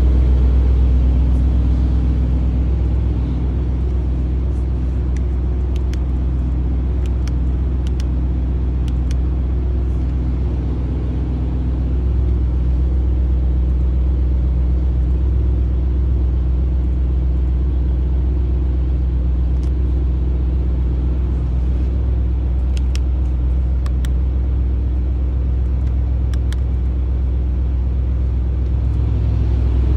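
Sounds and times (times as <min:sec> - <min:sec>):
car engine idling: 0:00.0 - 0:29.9
light clicks: 0:07.0 - 0:08.1, 0:22.6 - 0:24.2.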